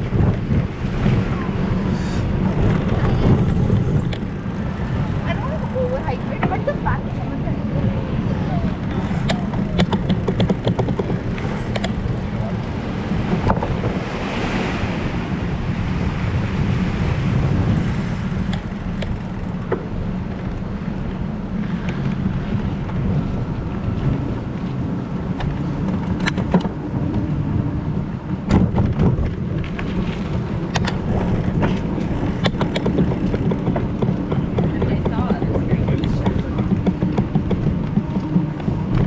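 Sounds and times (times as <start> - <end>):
wind rumbling on microphone: 0.0 - 39.0
sharp clicks or knocks: 9.2 - 12.1, 31.6 - 34.8.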